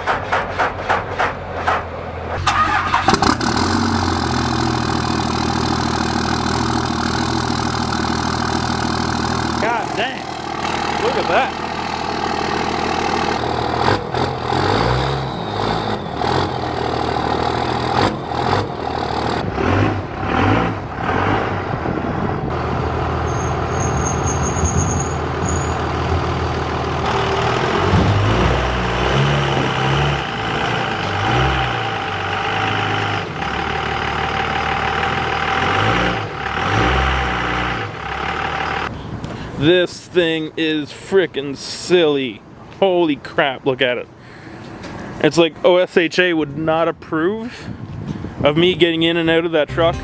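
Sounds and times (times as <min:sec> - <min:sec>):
truck engine running: 0:00.0 - 0:39.2, 0:49.7 - 0:50.0.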